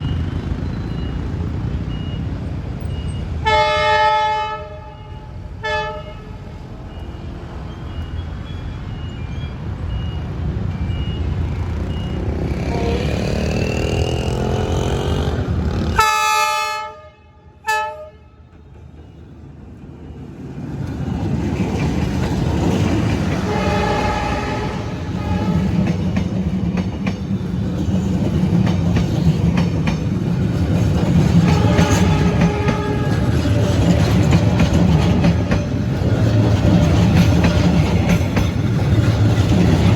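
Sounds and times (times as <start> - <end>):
diesel locomotive rumbling: 0.0 - 39.9
train horn blasts: 3.4 - 6.6, 12.6 - 13.6, 15.0 - 18.5, 23.3 - 26.0, 31.4 - 33.5.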